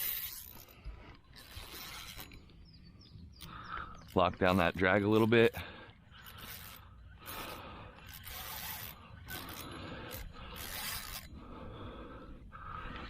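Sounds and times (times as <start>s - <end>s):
fishing reel ratcheting: 0.0s - 2.4s, 3.4s - 11.4s.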